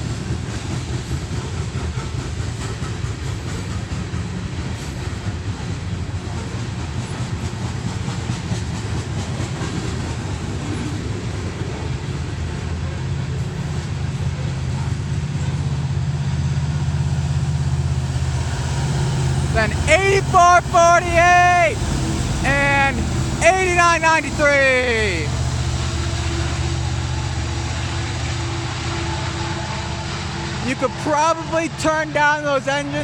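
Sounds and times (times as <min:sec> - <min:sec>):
train wheels clicking on rails: 0:00.0 - 0:21.2
diesel locomotive engine drone: 0:00.0 - 0:33.0.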